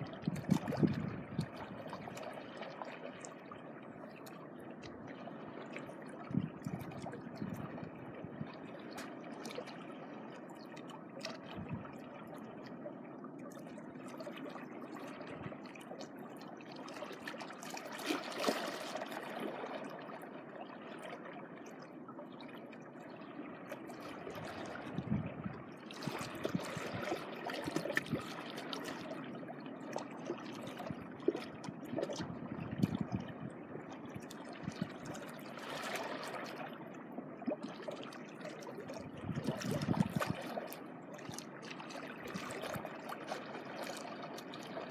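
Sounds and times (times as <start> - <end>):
small waves lapping on shore: 13.4 - 21.2, 25.8 - 44.9.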